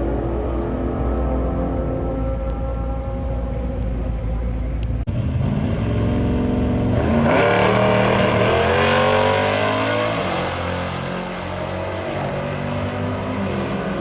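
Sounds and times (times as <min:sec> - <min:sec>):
car engine revving: 0:05.1 - 0:14.0.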